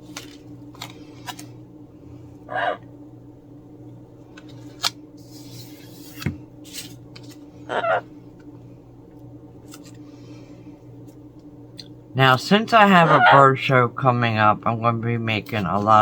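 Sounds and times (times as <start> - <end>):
steady low hum: 0.0 - 16.0
parrot call: 2.5 - 2.9, 7.6 - 8.1, 13.0 - 13.5.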